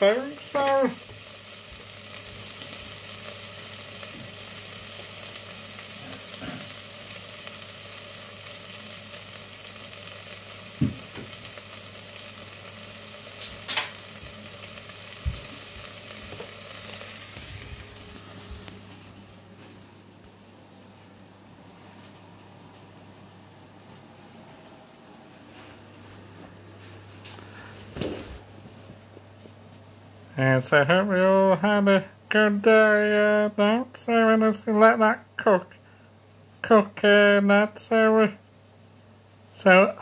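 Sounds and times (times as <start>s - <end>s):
food sizzling in a pan: 0.0s - 24.6s, 26.7s - 28.4s.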